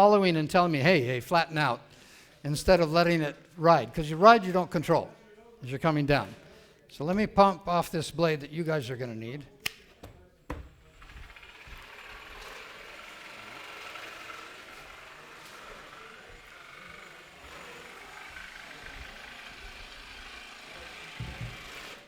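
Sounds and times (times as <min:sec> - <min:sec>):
jigsaw cutting countertop: 0:10.5 - 0:22.0.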